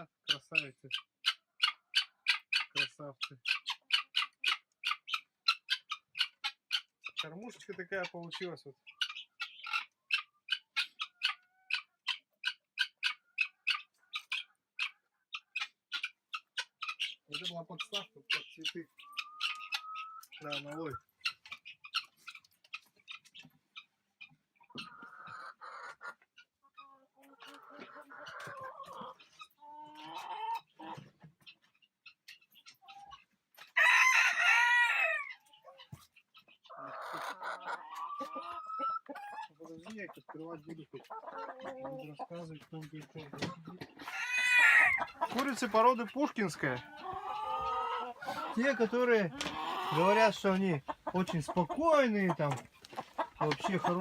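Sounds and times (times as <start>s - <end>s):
chicken calls: 0.0s - 54.0s
rooster crowing: 33.8s - 35.3s.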